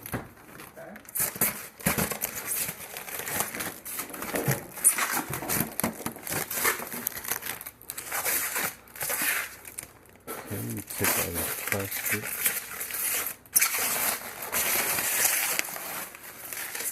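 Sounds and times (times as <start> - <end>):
plastic packaging crinkling: 0.0 - 16.9.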